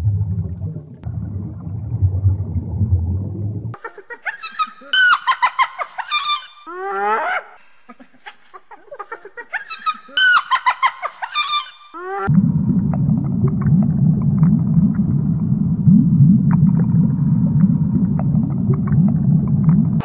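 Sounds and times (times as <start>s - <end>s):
low rumble: 0.0s - 3.8s, 12.3s - 20.0s
hyena cackling: 9.6s - 12.3s.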